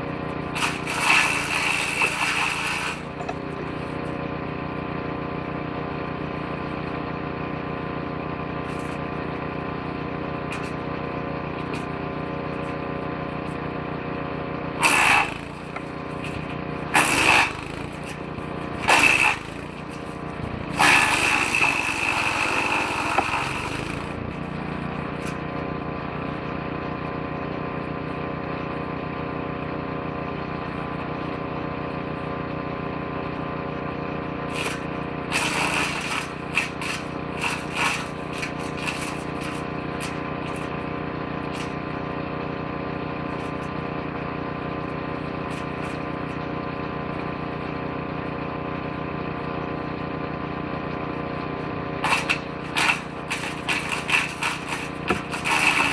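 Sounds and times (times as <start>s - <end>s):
woodchipper engine running: 0.0s - 55.9s
branches shredding: 34.6s - 40.8s, 52.0s - 55.9s.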